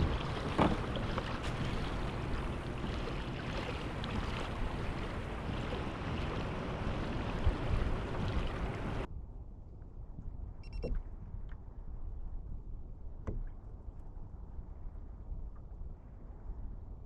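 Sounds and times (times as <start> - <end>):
small water splashes: 0.0 - 9.1
water rushing around kayak: 0.0 - 9.1
wind buffeting microphone: 0.0 - 17.0.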